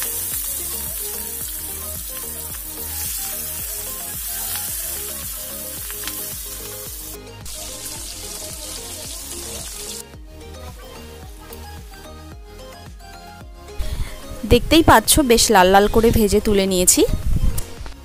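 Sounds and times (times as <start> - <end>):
prawns sizzling in hot oil: 0.0 - 10.2.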